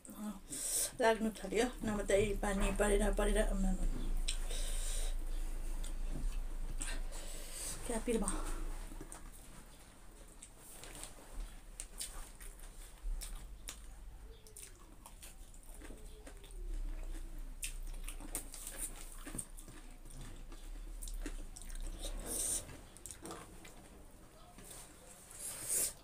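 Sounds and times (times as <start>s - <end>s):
chewing with mouth clicks: 4.0s - 7.1s, 8.2s - 25.3s.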